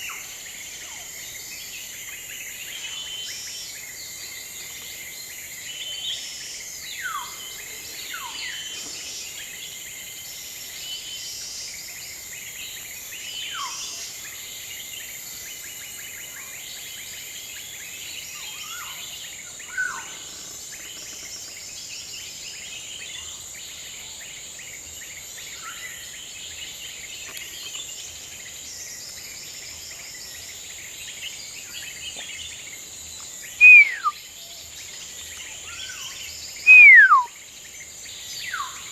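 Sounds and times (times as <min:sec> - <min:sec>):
insects droning: 0:00.0 - 0:38.9
birds whistling: 0:33.6 - 0:34.2, 0:36.6 - 0:37.4.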